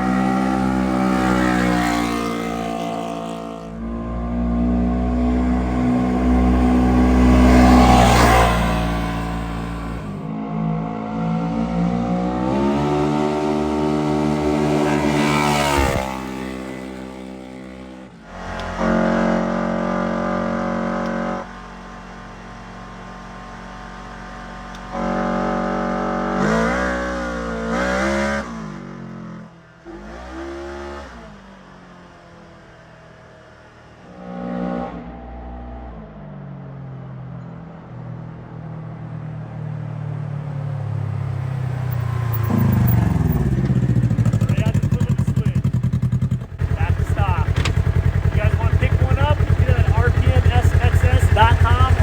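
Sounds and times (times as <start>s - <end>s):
engine revving: 0.0s - 31.5s, 40.2s - 52.0s.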